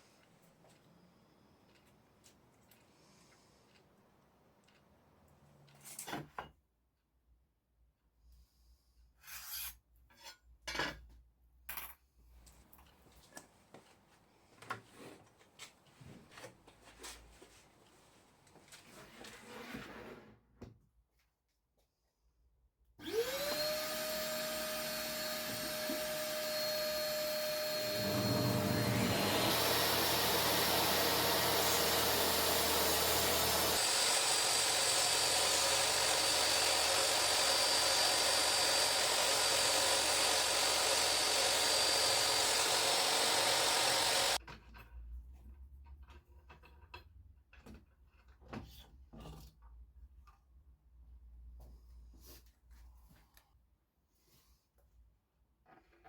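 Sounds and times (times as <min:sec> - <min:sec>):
power tool motor whining: 0:23.0 - 0:44.4.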